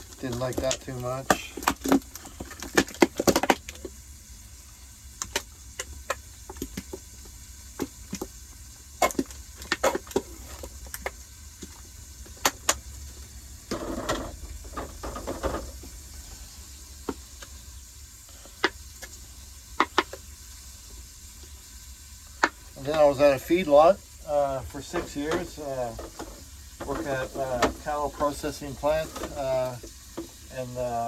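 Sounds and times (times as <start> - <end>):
objects clicking and knocking: 0.0 - 4.0, 13.6 - 16.0, 19.8 - 20.3
rustling and scraping: 13.7 - 17.2, 24.6 - 30.4.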